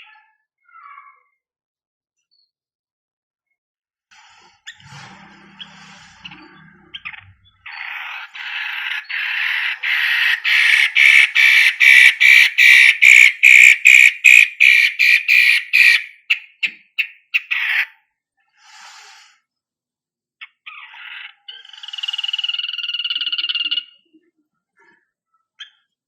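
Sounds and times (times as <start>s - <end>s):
bird giving harsh rasping calls: 5.5s - 18.0s.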